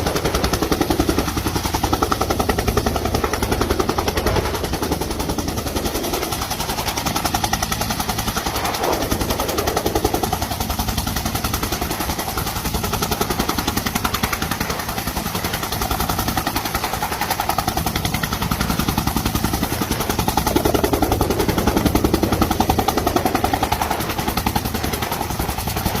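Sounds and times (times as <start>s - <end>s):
helicopter rotor blade-slap thumping: 0.0s - 26.0s
turbine engine running: 0.0s - 26.0s.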